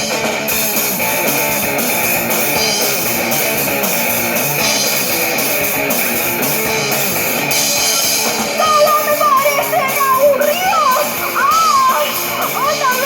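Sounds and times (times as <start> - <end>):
drum kit: 0.0 - 13.0
electric guitar: 0.0 - 13.0
person's voice: 8.6 - 13.0.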